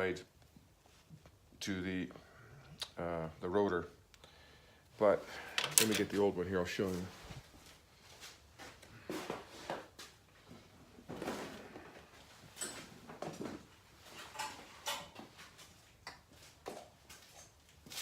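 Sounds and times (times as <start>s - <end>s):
small parts clicking and rustling: 5.5s - 6.2s.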